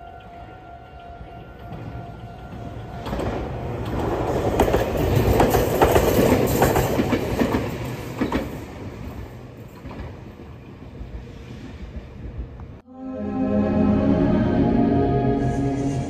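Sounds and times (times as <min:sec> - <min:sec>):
train rumble passing: 0:00.0 - 0:12.8
wheels clacking over rail joints: 0:01.4 - 0:11.1.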